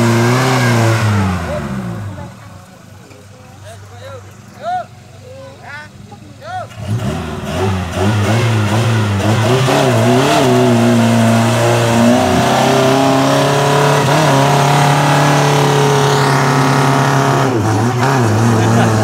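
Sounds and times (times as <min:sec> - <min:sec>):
engine revving hard: 0:00.0 - 0:02.3, 0:06.7 - 0:19.0.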